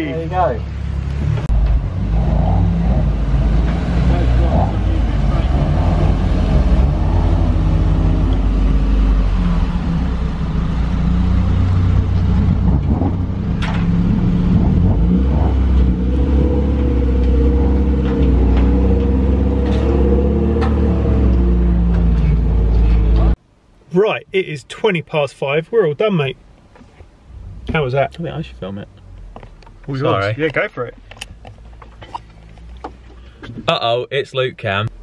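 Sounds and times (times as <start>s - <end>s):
car engine running: 0.0s - 23.4s.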